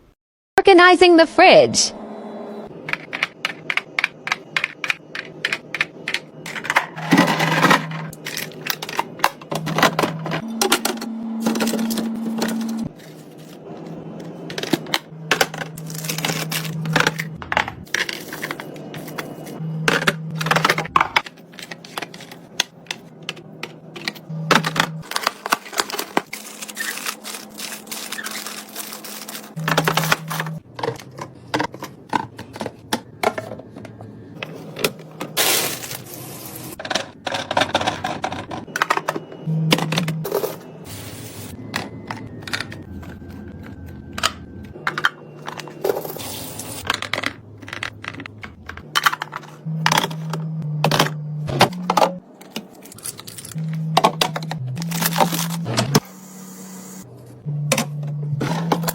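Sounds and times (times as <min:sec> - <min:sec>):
containers clattering: 0:03.0 - 0:36.0, 0:36.8 - 0:40.6, 0:41.6 - 0:56.0.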